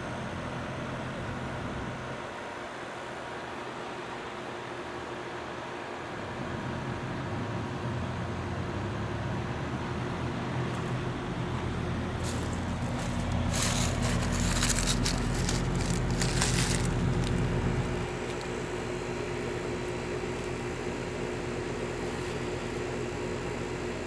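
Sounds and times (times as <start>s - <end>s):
air conditioner unit humming: 0.0s - 24.0s
crackling rushing noise: 11.5s - 22.9s.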